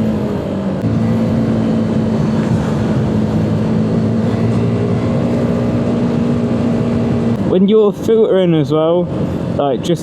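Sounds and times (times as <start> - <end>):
wind rush: 0.9 - 7.4.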